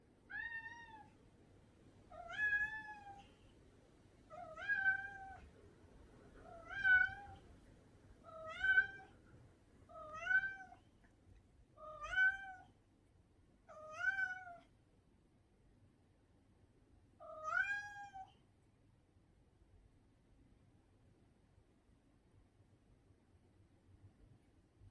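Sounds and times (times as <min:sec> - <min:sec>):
cat meowing: 0:00.3 - 0:01.1, 0:02.1 - 0:03.3, 0:04.3 - 0:05.5, 0:06.4 - 0:07.4, 0:08.2 - 0:09.2, 0:09.9 - 0:10.8, 0:11.8 - 0:12.7, 0:13.7 - 0:14.7, 0:17.2 - 0:18.4.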